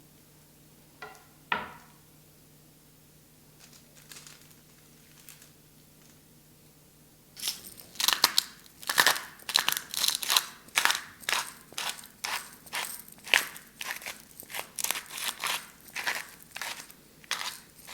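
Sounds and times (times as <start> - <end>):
dry crinkling and crunching: 3.6 - 6.2, 7.4 - 17.9.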